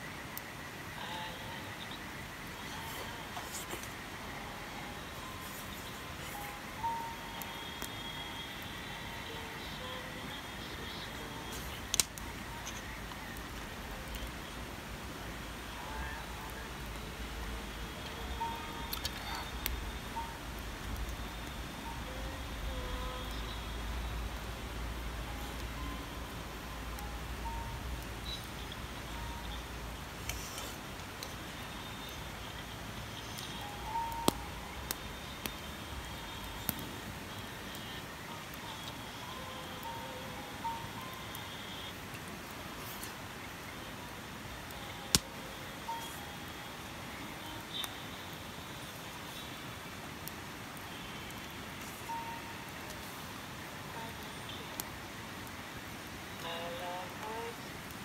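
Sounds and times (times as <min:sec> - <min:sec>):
outdoor background hiss: 0:00.0 - 0:58.0
high chirp: 0:04.6 - 0:13.4
sharp clicks: 0:11.9 - 0:12.9.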